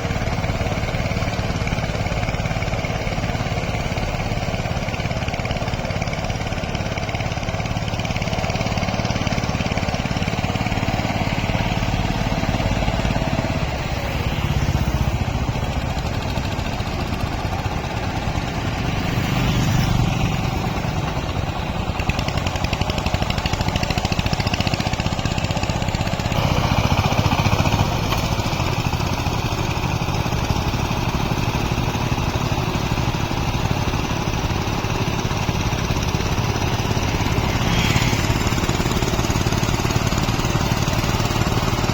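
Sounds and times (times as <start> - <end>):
diesel tractor engine running: 0.0 - 41.9.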